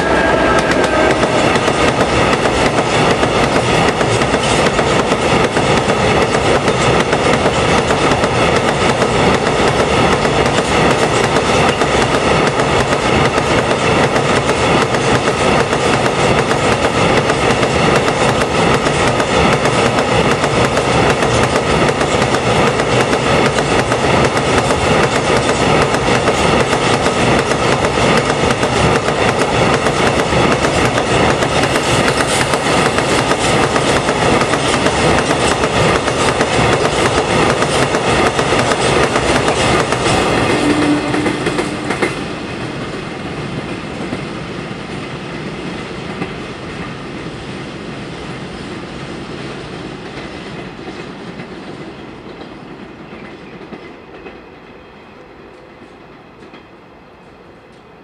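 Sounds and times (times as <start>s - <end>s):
freight train wheels clattering: 0.0s - 43.0s.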